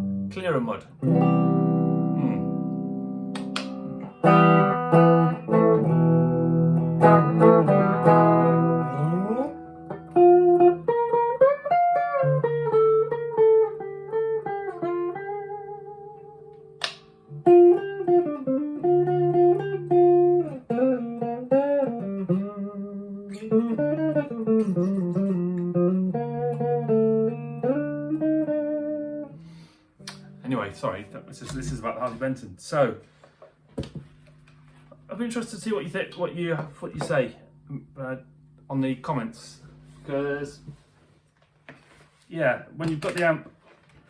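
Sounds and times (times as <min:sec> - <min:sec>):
clean electric guitar: 0:00.0 - 0:32.3
sharp click: 0:03.3 - 0:03.8.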